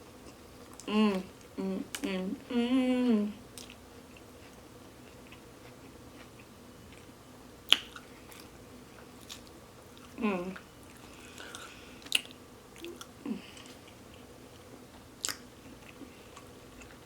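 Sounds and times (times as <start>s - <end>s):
person chewing food: 3.6s - 17.0s.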